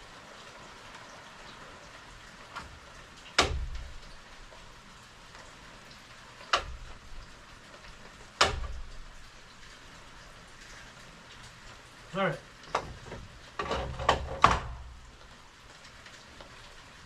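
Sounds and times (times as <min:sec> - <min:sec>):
knocks on wooden kayak frame: 0:03.4 - 0:03.9, 0:08.4 - 0:08.8, 0:12.7 - 0:14.9.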